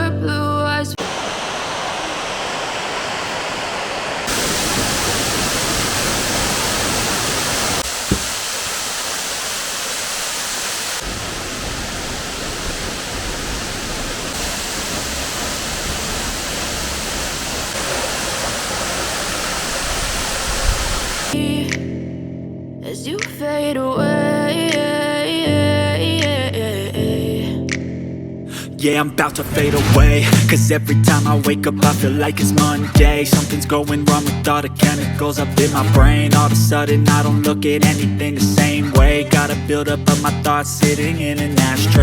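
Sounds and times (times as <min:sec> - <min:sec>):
waterfall and stream rushing: 0:01.0 - 0:21.4.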